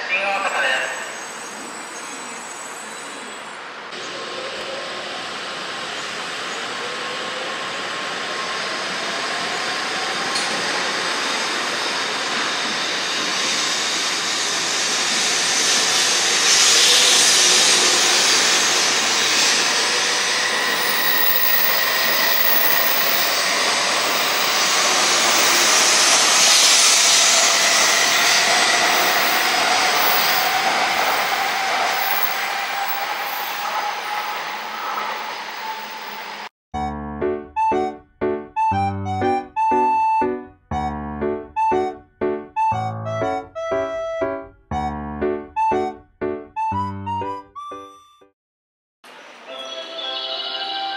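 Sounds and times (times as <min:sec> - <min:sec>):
train wheels and air rushing: 0:03.9 - 0:36.5.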